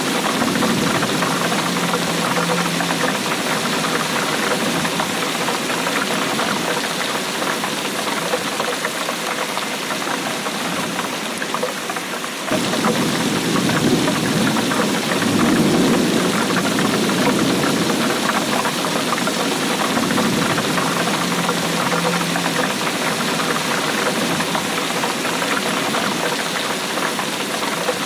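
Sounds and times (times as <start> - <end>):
steady rainfall: 0.0 - 28.0.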